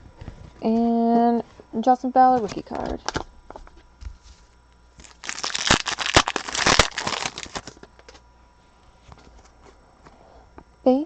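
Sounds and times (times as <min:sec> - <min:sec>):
plastic crinkling and rustling: 0:02.4 - 0:08.2.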